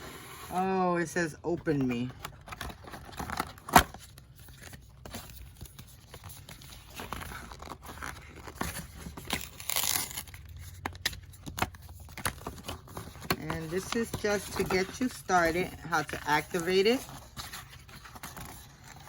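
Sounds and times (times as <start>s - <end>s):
packaging rustling and crinkling: 1.8s - 19.0s
packaging tearing: 2.5s - 15.2s.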